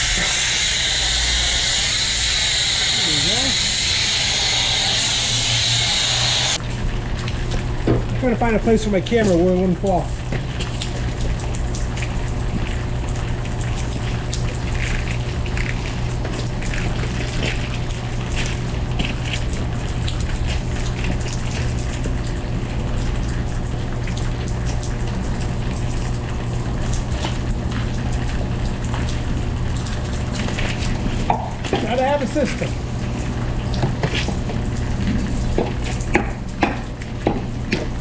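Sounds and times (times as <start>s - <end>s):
water hissing from spray wand: 0.0s - 6.6s
pressure washer pump humming: 0.0s - 38.0s.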